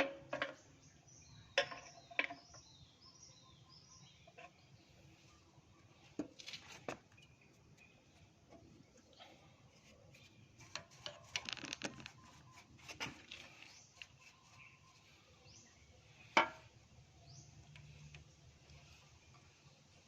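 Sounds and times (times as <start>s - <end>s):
small parts and tools rattling: 9.8s - 14.4s.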